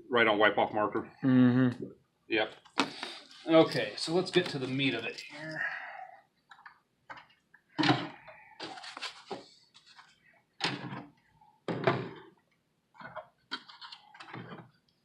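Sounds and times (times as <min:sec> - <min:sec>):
packaging scraping and rustling: 0:08.6 - 0:10.2.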